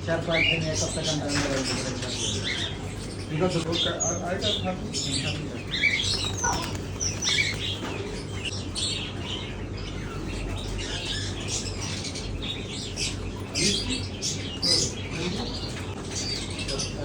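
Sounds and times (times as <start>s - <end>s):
caged birds chirping: 0.0s - 17.0s.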